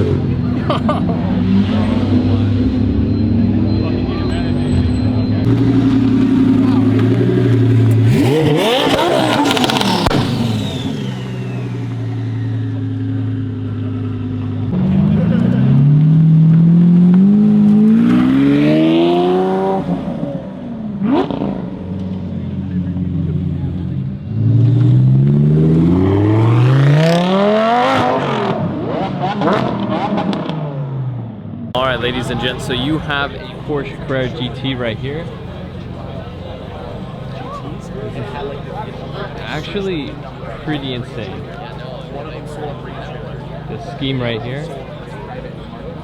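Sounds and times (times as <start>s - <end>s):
high engine whine: 0.0s - 21.0s, 31.8s - 46.0s
car engine revving: 0.0s - 30.8s, 31.8s - 46.0s
exhaust crackling pops: 5.4s - 12.6s, 31.8s - 46.0s.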